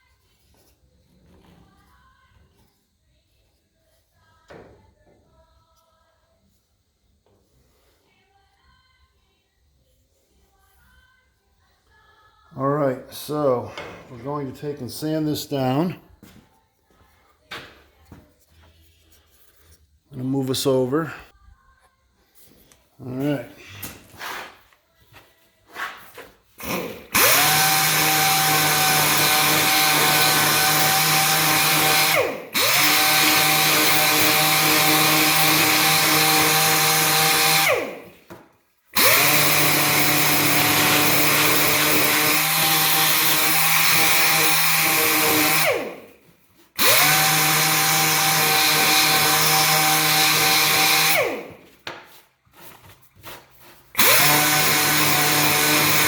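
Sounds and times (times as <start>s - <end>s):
power sander whining: 26.6s - 38.1s, 39.0s - 46.0s, 46.8s - 51.6s, 54.0s - 56.0s.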